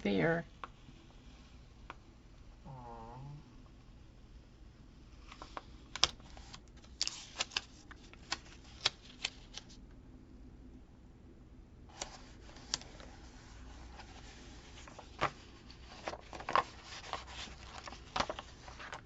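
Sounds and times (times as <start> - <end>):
paper sheets clicking and crinkling: 5.2 - 9.8, 11.9 - 19.0.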